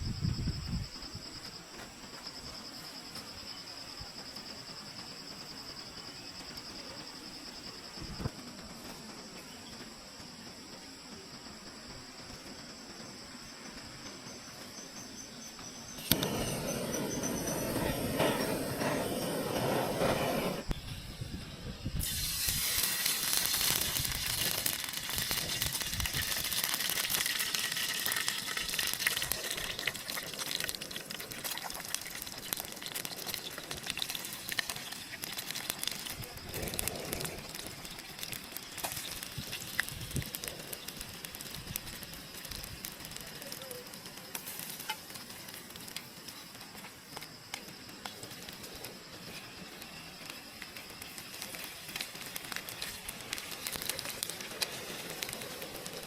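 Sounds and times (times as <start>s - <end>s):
food sizzling in a pan: 22.0s - 45.6s.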